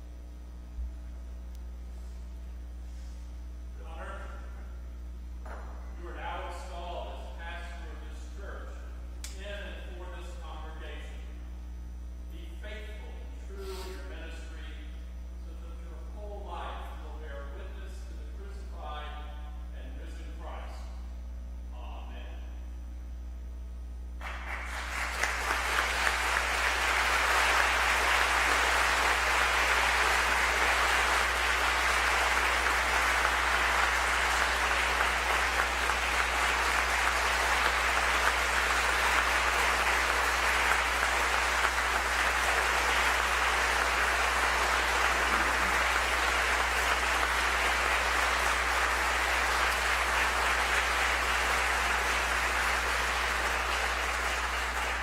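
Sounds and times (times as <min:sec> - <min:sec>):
congregation applauding: 0:24.2 - 0:55.0.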